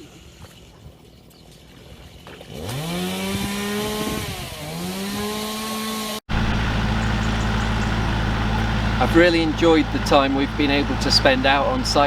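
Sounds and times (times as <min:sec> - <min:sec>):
two-stroke power tool engine revving: 0:02.5 - 0:12.0
low engine hum: 0:06.3 - 0:12.0.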